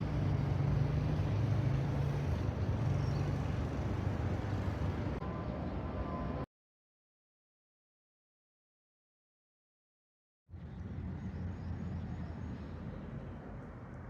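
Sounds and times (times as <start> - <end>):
road traffic rumble: 0.0 - 6.4.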